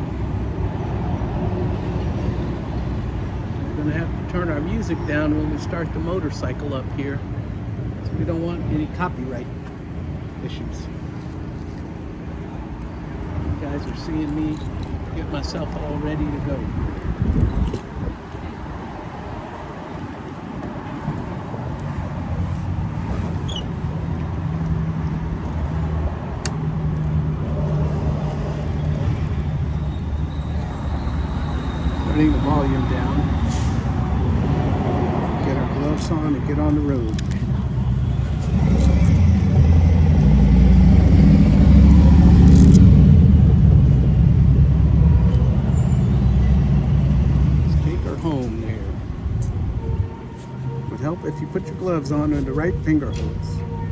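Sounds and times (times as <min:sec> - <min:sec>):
vehicle engine running: 0:33.9 - 0:46.0.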